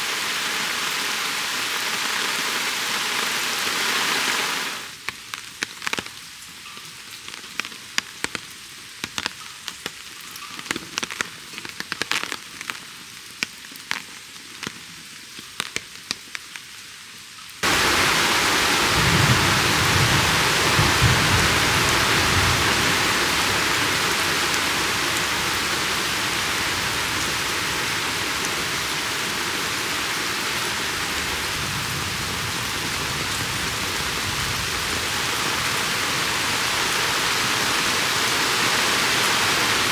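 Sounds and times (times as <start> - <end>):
heavy rain: 0.0 - 9.3, 17.6 - 39.9
raindrops ticking: 4.9 - 36.7
thunder rumble: 17.6 - 36.8.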